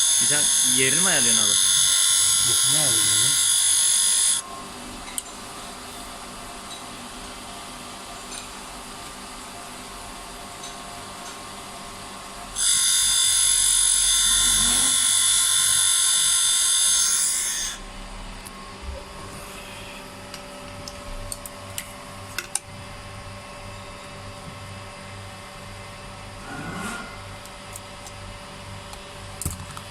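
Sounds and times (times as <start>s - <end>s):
power tool whining: 0.0s - 4.4s, 12.6s - 17.8s.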